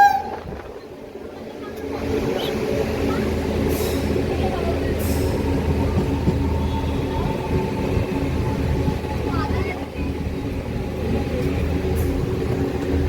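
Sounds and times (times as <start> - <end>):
electric train rumbling on rails: 0.0 - 13.0.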